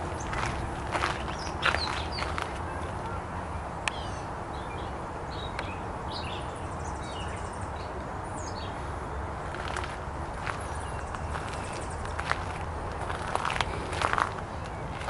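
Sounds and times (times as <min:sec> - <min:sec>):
steady low rumble: 0:00.0 - 0:03.6, 0:08.7 - 0:15.0
songbirds chirping and whistling: 0:00.0 - 0:15.0.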